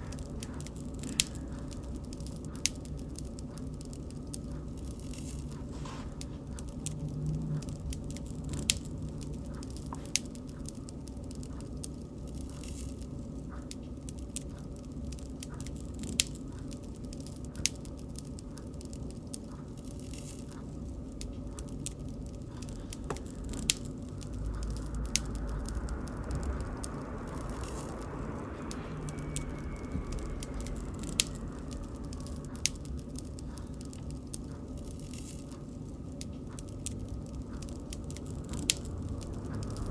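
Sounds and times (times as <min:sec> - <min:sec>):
bonfire burning: 0:00.0 - 0:39.9
fire crackles and pops: 0:00.0 - 0:39.9
faint whistle: 0:27.8 - 0:31.8.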